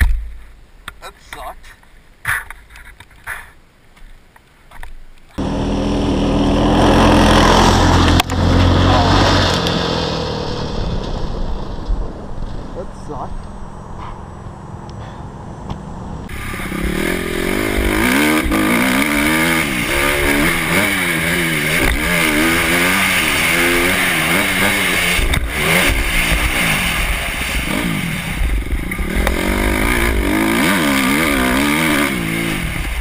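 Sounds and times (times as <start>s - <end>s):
dirt bike engine revving: 5.4s - 11.8s, 16.3s - 33.0s.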